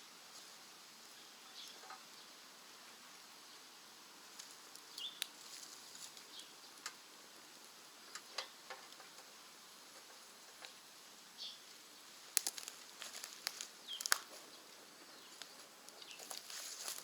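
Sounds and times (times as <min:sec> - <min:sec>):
wood fire crackling: 0:04.2 - 0:17.0
sharp pops and ticks of fire: 0:04.4 - 0:10.8, 0:12.3 - 0:14.5.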